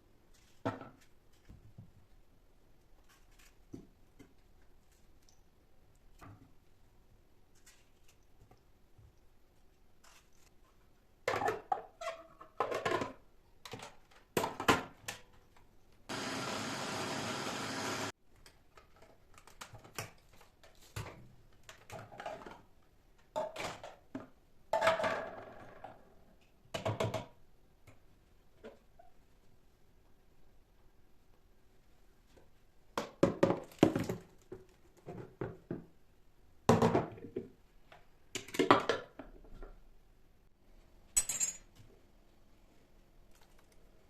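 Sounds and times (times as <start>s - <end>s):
small electric motor running: 16.1s - 18.1s.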